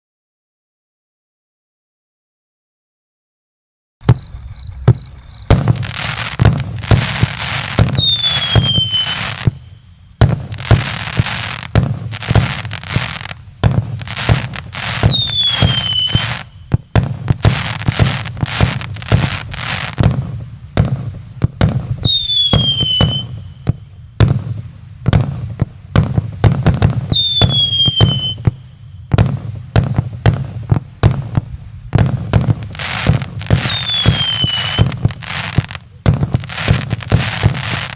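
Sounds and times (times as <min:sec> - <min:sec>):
firework hiss: 0:04.0 - 0:37.9
firework shots and bangs: 0:04.0 - 0:37.9
short falling whistle: 0:08.0 - 0:09.8, 0:22.0 - 0:23.5, 0:27.2 - 0:28.9.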